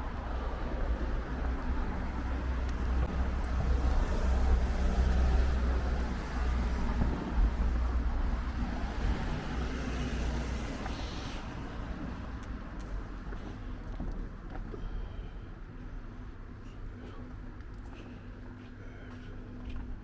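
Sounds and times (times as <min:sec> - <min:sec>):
vehicle passing by: 0:01.8 - 0:12.2.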